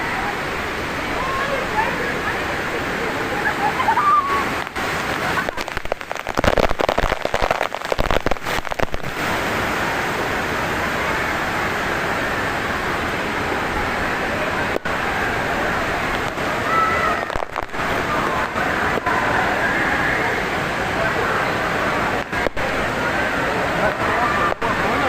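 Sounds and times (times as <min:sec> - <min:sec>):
water rushing: 0:00.0 - 0:25.0
rapid crackling: 0:04.6 - 0:09.2.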